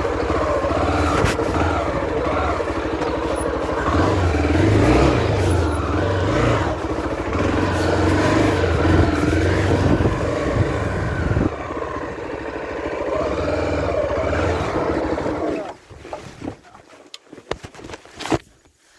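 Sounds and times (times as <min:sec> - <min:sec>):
motorcycle engine revving: 0:00.0 - 0:15.8.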